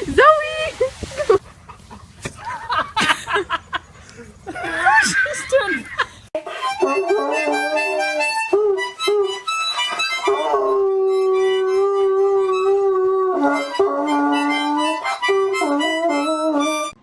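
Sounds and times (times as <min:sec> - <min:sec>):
harmonica playing a tune: 0:06.4 - 0:17.0
dog howling: 0:10.2 - 0:16.9.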